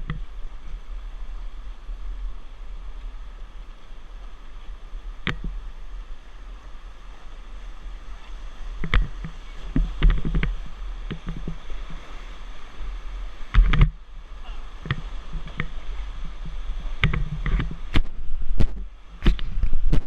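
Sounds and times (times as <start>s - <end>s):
rushing water: 0.0s - 20.0s
splashes and knocks: 8.7s - 14.0s, 14.7s - 20.0s.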